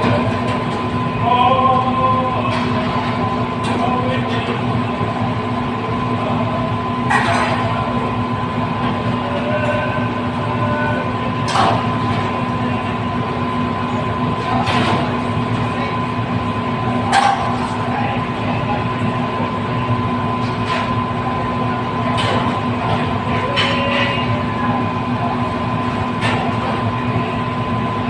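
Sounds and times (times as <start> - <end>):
mechanical rumble with hum: 0.0 - 28.0.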